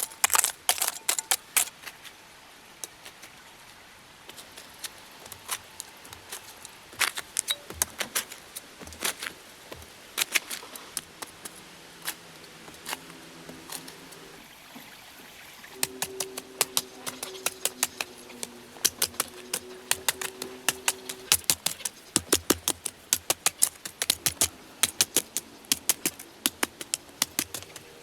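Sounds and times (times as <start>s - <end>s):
faint steady hum: 3.4s - 28.0s
hard objects tapping: 15.8s - 28.0s.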